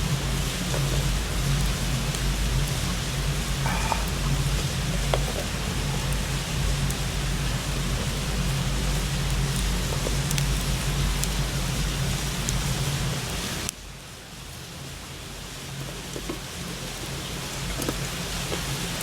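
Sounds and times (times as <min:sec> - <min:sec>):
wood fire crackling and hissing: 0:00.0 - 0:19.0.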